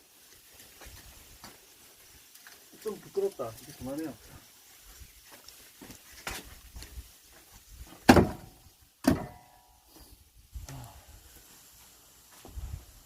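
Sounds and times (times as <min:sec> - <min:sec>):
axe splitting firewood: 0:08.0 - 0:09.6.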